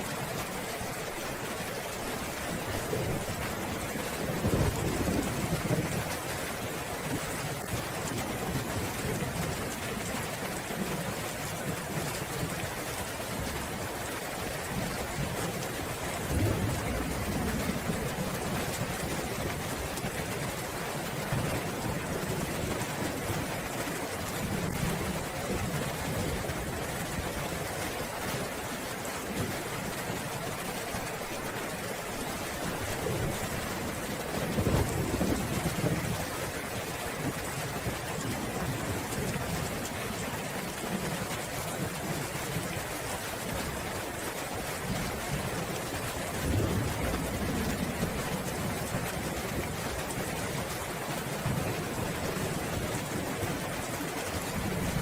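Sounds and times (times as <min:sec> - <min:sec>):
heavy rain falling: 0:00.0 - 0:55.0
thunder rumbling: 0:02.8 - 0:06.2.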